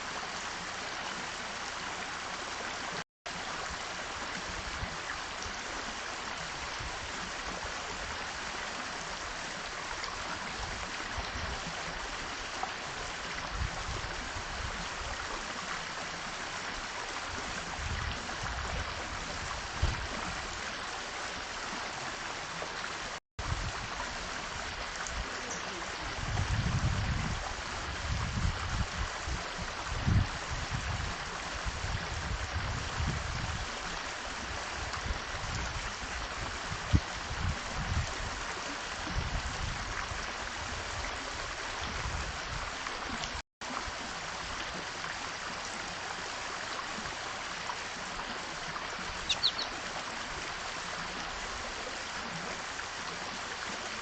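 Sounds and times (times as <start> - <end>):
small bird chirp: 49.3 - 49.8.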